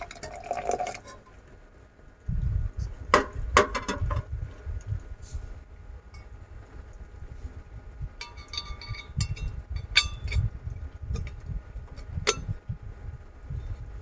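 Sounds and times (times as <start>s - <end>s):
heavy rain and wind rumble: 1.5s - 14.0s
kitchenware clinking: 8.2s - 10.5s.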